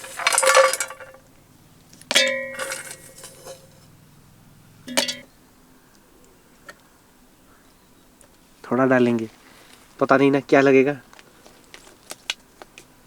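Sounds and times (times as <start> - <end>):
utensil clinking on container: 0.0 - 1.2, 2.1 - 3.8, 4.9 - 5.3.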